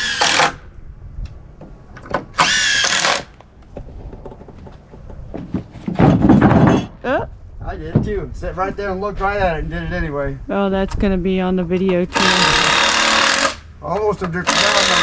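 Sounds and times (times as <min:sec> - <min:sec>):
power drill whining: 0:00.0 - 0:00.6, 0:02.4 - 0:03.3, 0:12.1 - 0:13.6, 0:14.4 - 0:15.0.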